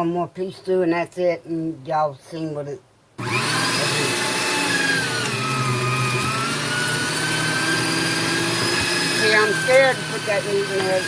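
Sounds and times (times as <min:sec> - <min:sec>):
electric meat grinder motor whine: 0:03.2 - 0:11.0.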